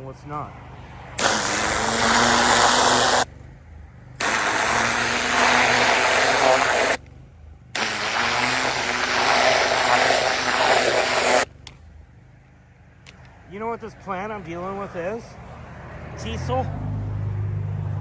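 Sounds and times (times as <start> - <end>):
pressure washer motor running: 1.2 - 3.3, 4.2 - 7.0, 7.8 - 11.5
pressure washer spraying soil: 1.2 - 3.3, 4.2 - 7.0, 7.8 - 11.5.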